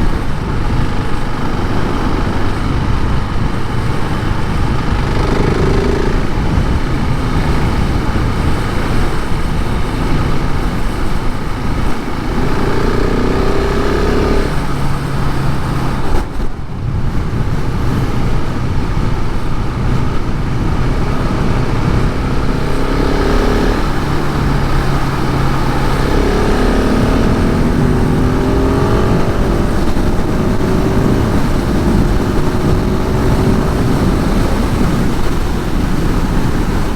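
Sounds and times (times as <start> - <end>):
motorcycle engine revving: 0.0 - 36.9
wind rushing: 0.0 - 36.9.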